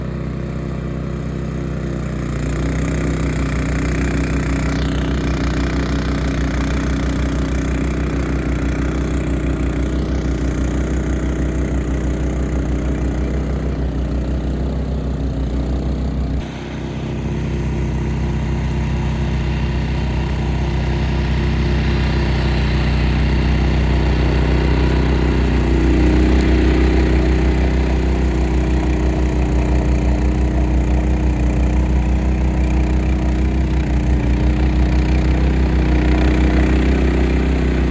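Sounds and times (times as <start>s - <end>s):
snowblower engine running: 0.0s - 37.9s.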